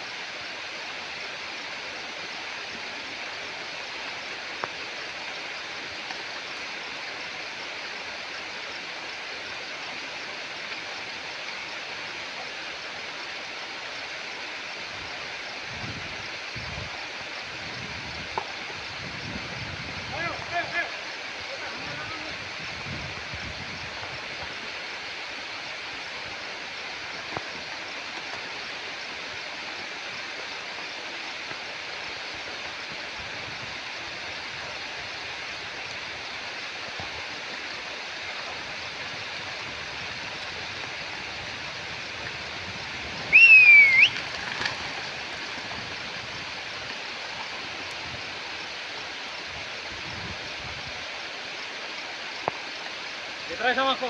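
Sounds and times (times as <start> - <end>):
stream water rushing: 0.0 - 54.0
high whistle falling and rising: 43.3 - 44.2.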